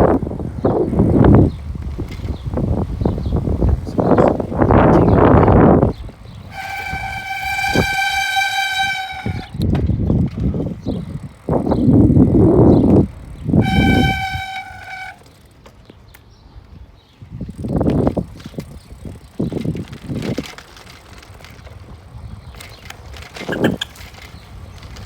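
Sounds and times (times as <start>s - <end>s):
wind noise on microphone: 0.0s - 15.2s, 16.3s - 25.0s
horn blasts: 6.5s - 9.6s, 13.6s - 15.2s.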